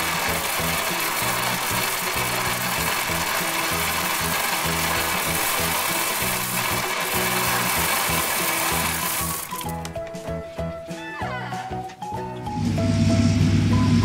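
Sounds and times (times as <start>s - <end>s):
plastic pellets pouring into toy trailer: 0.0s - 9.9s
background music with steady beat: 0.0s - 14.0s.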